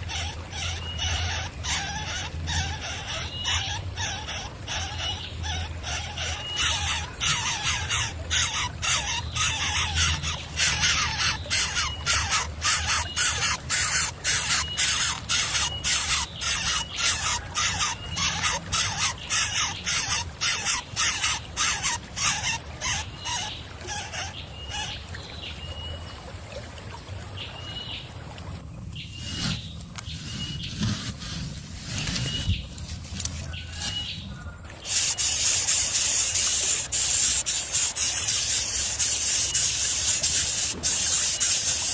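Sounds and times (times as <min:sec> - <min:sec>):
chicks hissing rasps: 0:00.1 - 0:23.4, 0:34.8 - 0:41.9.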